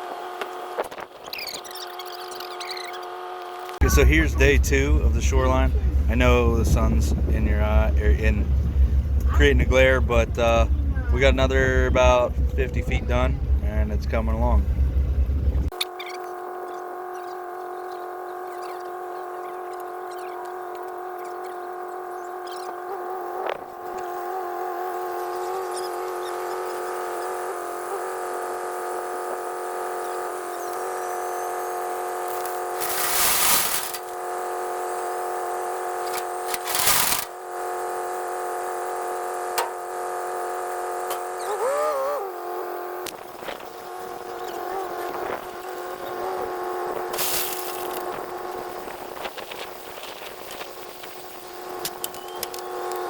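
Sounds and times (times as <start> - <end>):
machine hum: 1.8 - 53.0
short rushes of noise: 32.3 - 34.2.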